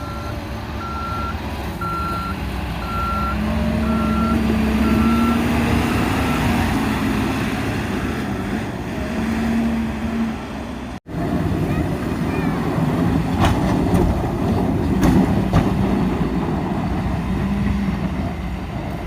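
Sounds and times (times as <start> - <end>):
truck reverse alarm beeping: 0.0 - 6.7.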